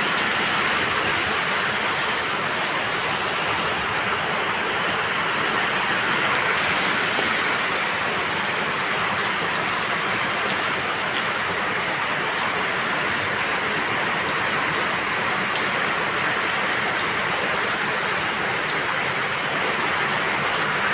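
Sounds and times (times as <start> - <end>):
rain falling: 0.0 - 20.9
brief high chirp: 17.7 - 18.4.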